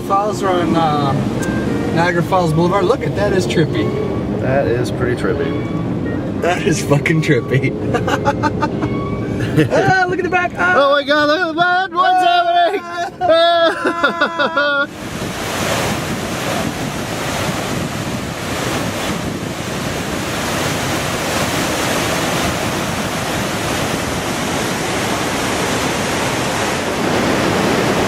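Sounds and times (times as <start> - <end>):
falling water rushing: 0.0 - 4.9, 12.2 - 28.0
wind buffeting microphone: 0.0 - 13.6, 14.8 - 28.0.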